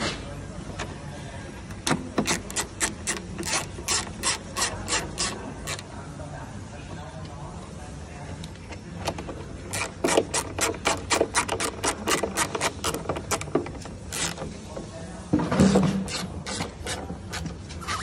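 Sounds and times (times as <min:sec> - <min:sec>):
scraping and rubbing: 0:02.0 - 0:05.9, 0:09.6 - 0:14.7, 0:15.6 - 0:18.0.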